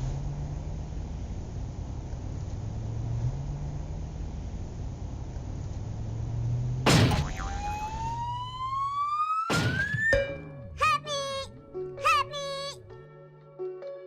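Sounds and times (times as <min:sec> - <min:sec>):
sharp crash: 0:06.8 - 0:07.6
music: 0:10.1 - 0:14.0.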